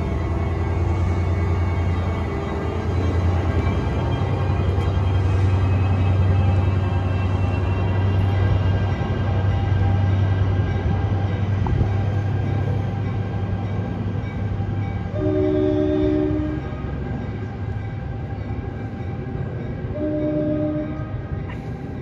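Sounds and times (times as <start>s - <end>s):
diesel locomotive drone: 0.0s - 22.0s
train horn blast: 15.1s - 16.9s, 19.9s - 21.4s.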